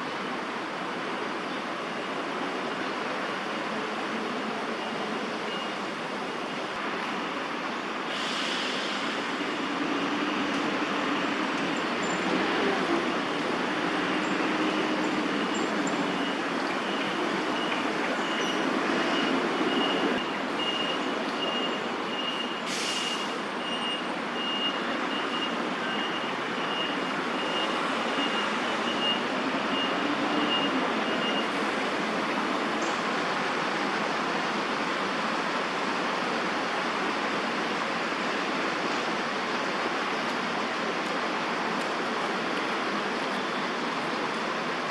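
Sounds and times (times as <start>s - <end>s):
city traffic: 0.0s - 44.9s
short hisses: 8.1s - 9.2s, 22.7s - 23.4s
reversing alarm beeping: 14.8s - 31.5s.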